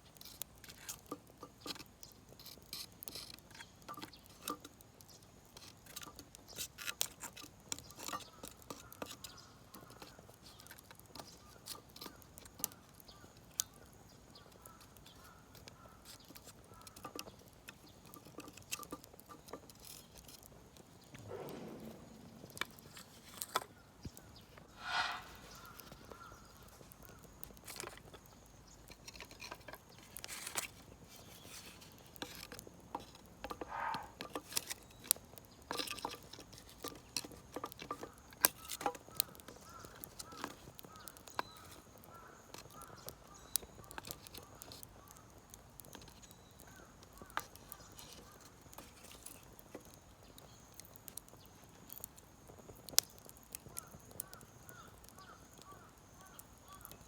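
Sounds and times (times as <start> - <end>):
wood fire crackling and popping: 0.0 - 57.0
birds chirping: 21.0 - 26.6, 33.6 - 34.2.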